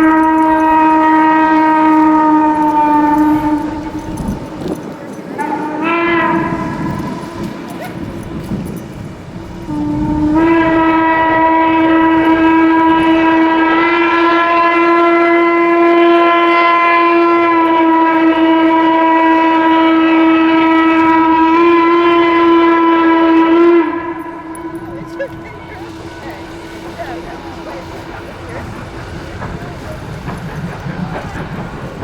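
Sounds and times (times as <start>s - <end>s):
steam locomotive whistle: 0.0s - 32.0s.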